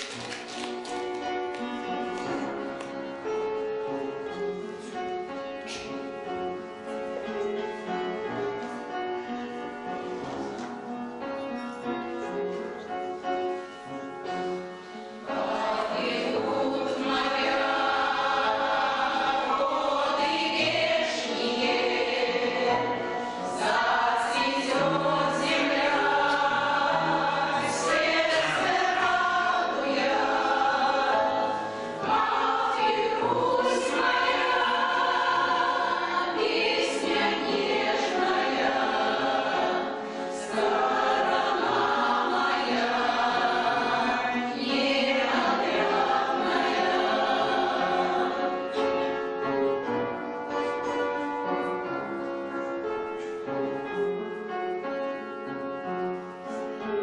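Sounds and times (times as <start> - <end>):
choir singing: 14.4 - 50.0.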